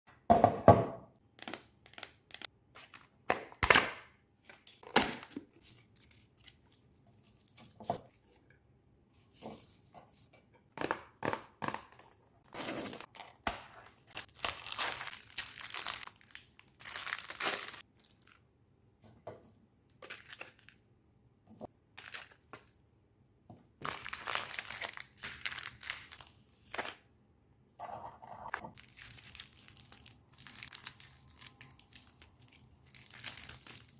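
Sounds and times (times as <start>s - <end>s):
wrappers being torn open: 11.8s - 18.4s, 28.6s - 33.9s
snack wrappers crinkling: 13.0s - 18.4s, 20.0s - 20.8s, 22.0s - 22.8s, 23.8s - 27.0s, 28.6s - 33.9s.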